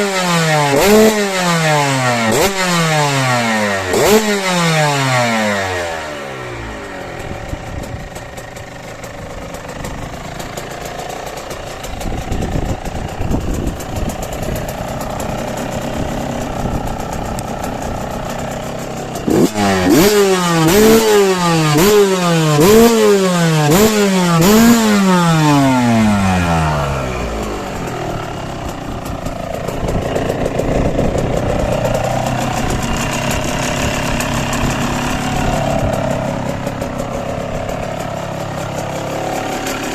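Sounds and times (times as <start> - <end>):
two-stroke engine revving: 0.0 - 39.9.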